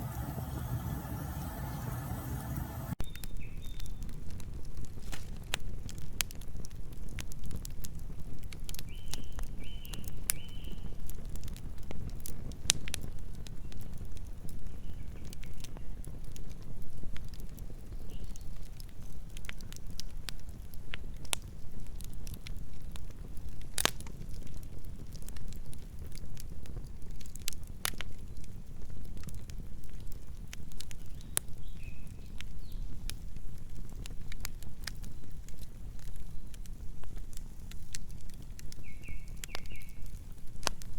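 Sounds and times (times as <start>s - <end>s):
low rumble: 0.0s - 3.0s
low rumble of flame: 0.0s - 40.9s
wood fire crackling: 0.0s - 40.9s.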